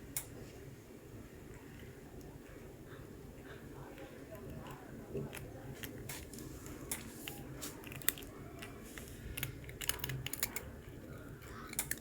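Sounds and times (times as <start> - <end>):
cat crunching crisp snack: 4.0 - 12.0.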